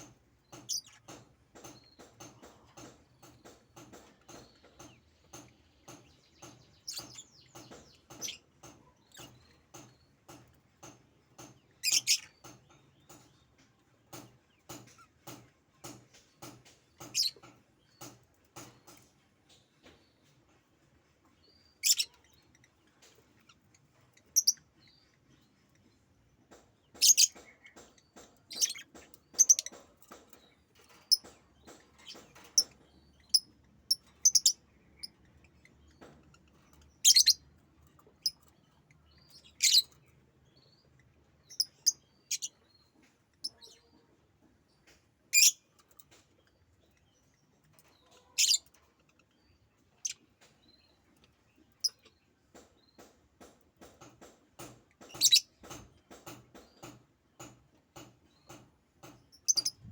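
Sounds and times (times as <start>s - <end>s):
pet bird chirping: 4.3s - 9.9s, 11.7s - 13.2s, 21.6s - 22.4s, 24.2s - 25.1s, 26.9s - 35.9s, 36.6s - 37.5s, 39.1s - 40.8s, 41.4s - 44.0s, 45.3s - 45.8s, 47.9s - 51.0s, 55.0s - 55.8s, 58.3s - 59.9s.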